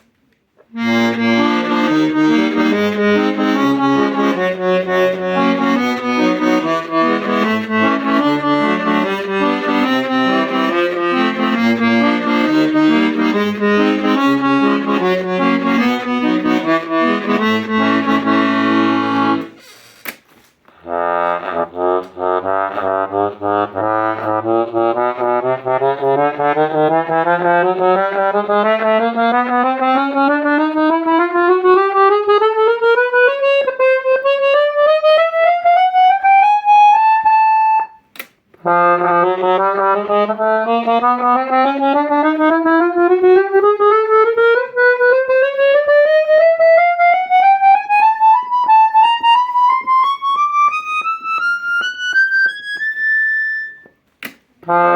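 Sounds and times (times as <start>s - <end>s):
accordion playing a scale: 0.6s - 54.9s
click: 38.1s - 39.8s, 47.8s - 54.8s.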